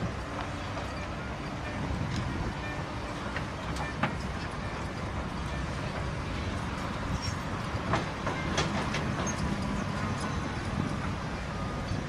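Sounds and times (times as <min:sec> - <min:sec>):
heavy machinery rumbling: 0:00.0 - 0:12.0.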